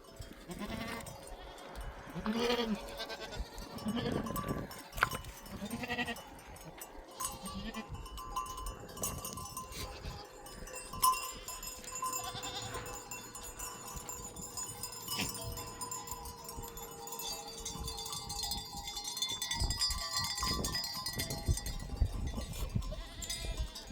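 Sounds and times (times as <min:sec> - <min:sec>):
livestock bells clinking: 0:00.0 - 0:23.9
sheep bleating: 0:00.4 - 0:06.3, 0:07.1 - 0:08.0, 0:12.0 - 0:13.2, 0:22.5 - 0:23.9.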